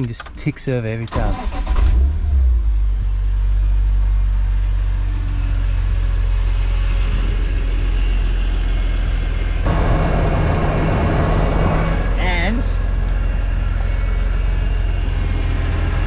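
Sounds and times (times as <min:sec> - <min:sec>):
car engine idling: 0:07.8 - 0:16.0.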